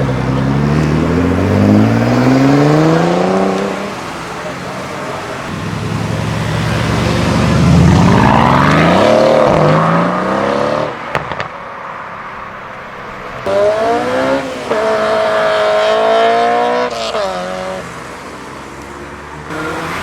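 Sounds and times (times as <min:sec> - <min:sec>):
another car engine revving: 0:00.0 - 0:04.0, 0:05.4 - 0:11.5, 0:13.4 - 0:17.8, 0:19.5 - 0:20.0
car engine accelerating hard: 0:00.0 - 0:11.0, 0:13.4 - 0:17.8, 0:19.5 - 0:20.0.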